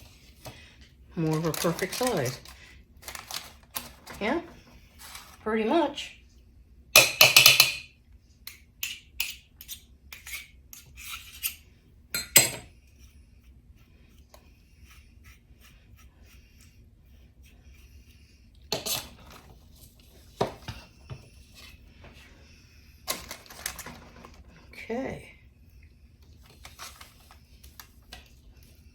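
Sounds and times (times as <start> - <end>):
utensils knocking on kitchenware: 7.0 - 7.9
metal scoop scraping a bowl: 9.3 - 11.6, 18.7 - 19.5.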